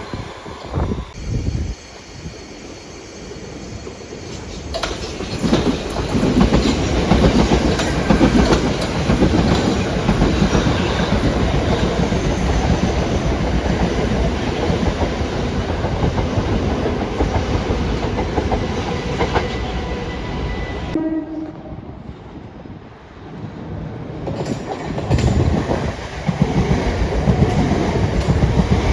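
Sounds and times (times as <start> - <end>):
train wheels clattering: 3.8 - 20.9, 24.3 - 28.9.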